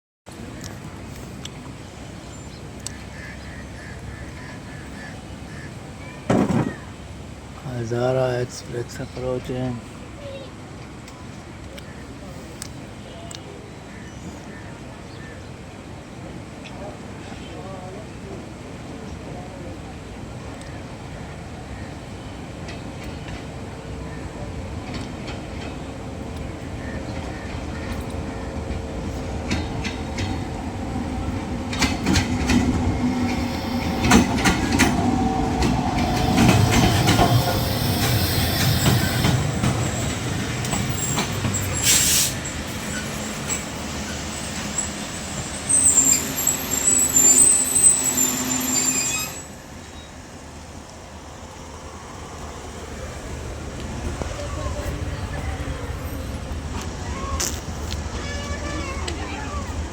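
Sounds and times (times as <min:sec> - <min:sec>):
train wheels clacking over rail joints: 0:24.8 - 0:43.8
wheel and brake squeal: 0:36.0 - 0:50.2.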